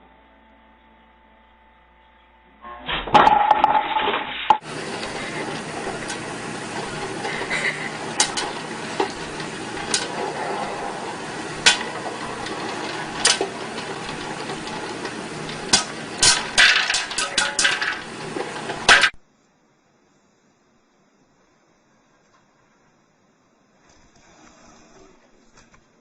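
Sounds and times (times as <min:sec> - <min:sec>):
steady noisy background: 0:00.0 - 0:24.2
sharp knocks and clattering: 0:02.9 - 0:19.2.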